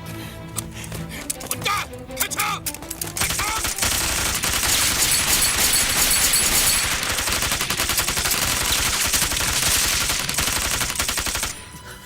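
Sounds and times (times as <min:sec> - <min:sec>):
rapid gunfire: 0:03.1 - 0:11.6.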